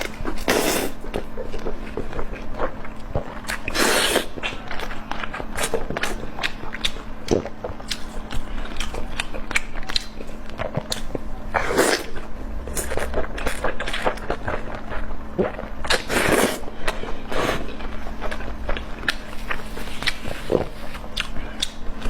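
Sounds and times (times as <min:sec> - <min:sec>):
chewing and biting: 0:00.0 - 0:12.2, 0:12.8 - 0:22.0.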